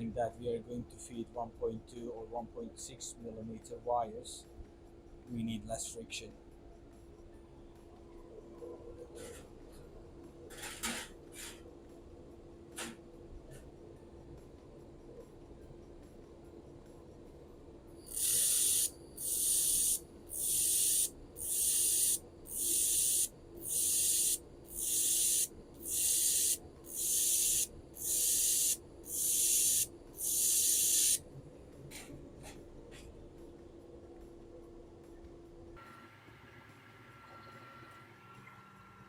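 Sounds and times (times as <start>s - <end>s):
faint machine hum: 0.0s - 39.0s
laser welder hissing pulses: 18.0s - 31.2s.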